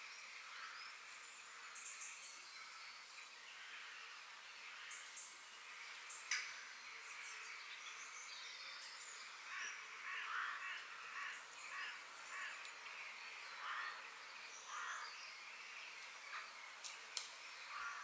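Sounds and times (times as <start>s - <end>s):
small birds chirping: 0.0s - 18.0s
steady high hiss: 0.0s - 18.0s
harsh caw-like bird calls: 9.4s - 12.8s, 13.5s - 15.2s, 17.7s - 18.0s.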